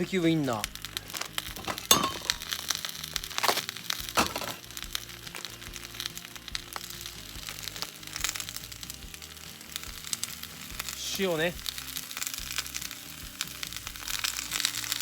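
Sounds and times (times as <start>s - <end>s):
background music: 0.0s - 15.0s
onions crackling in a hot pan: 0.0s - 15.0s
sausages knocking into pan: 0.7s - 6.0s.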